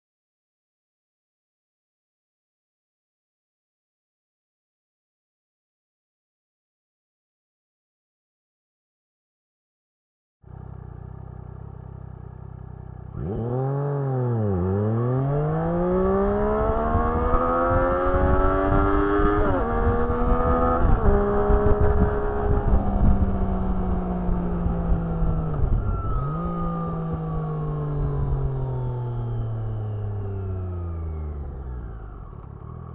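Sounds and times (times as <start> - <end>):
motorcycle engine accelerating: 10.4 - 32.9.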